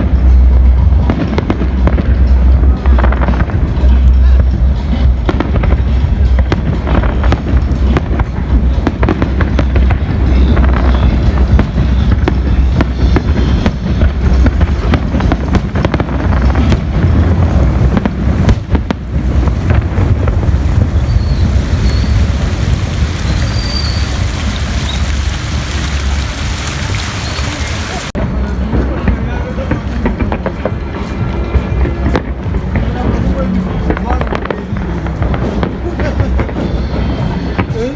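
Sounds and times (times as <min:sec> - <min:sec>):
continuous low rumble: 0:00.0 - 0:37.9
fireworks bangs: 0:04.9 - 0:28.2.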